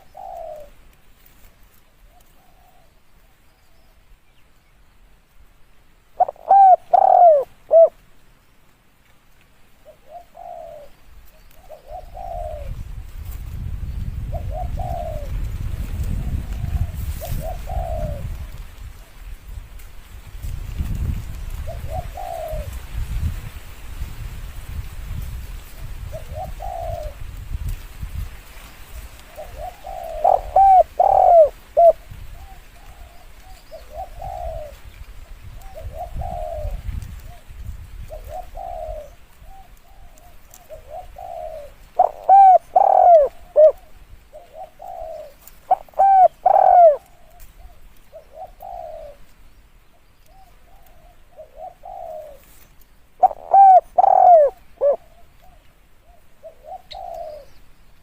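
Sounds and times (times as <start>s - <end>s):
doves cooing: 0.0s - 1.0s, 2.0s - 4.0s, 6.1s - 8.0s, 9.7s - 12.9s, 14.2s - 19.3s, 21.6s - 22.9s, 26.0s - 27.3s, 29.0s - 57.7s.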